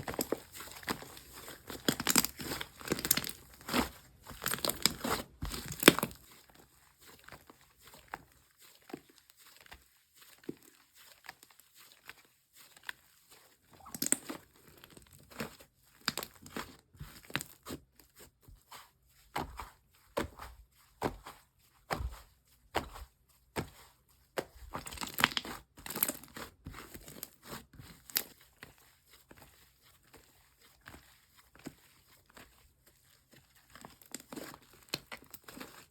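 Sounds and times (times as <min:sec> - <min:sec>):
slime crackling and popping: 0:01.6 - 0:06.2, 0:24.8 - 0:26.3.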